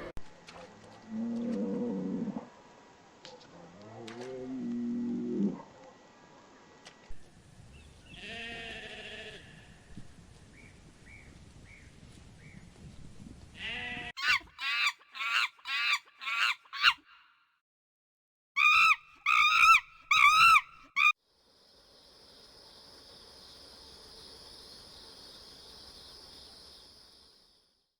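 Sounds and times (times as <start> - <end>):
livestock bleating: 8.2 - 9.6, 13.6 - 14.1.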